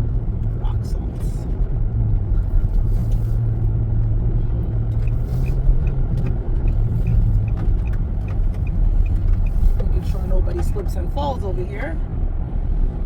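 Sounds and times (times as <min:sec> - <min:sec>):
car road and engine rumble: 0:00.0 - 0:13.0
faint regular ticking: 0:05.0 - 0:09.8.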